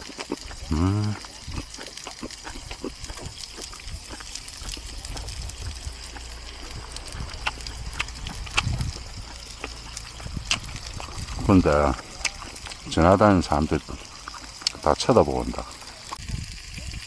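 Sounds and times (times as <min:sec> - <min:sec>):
low steady hum: 0:00.0 - 0:16.2
person chewing food: 0:00.0 - 0:16.3.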